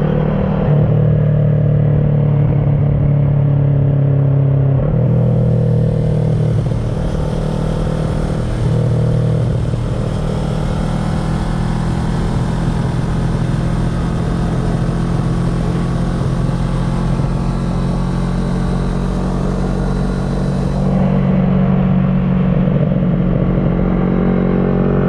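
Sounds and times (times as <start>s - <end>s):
motorcycle engine running: 5.0s - 24.0s.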